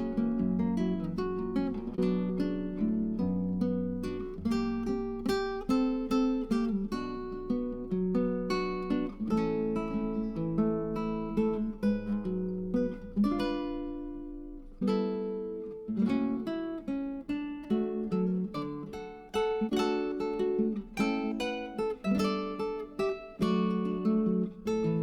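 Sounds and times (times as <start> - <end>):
acoustic guitar picking: 0.0 - 25.0.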